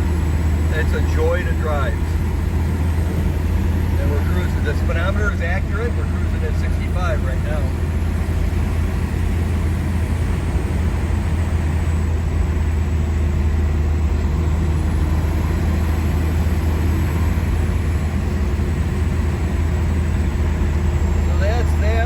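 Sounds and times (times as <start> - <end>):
car engine and road noise drone: 0.0 - 22.0.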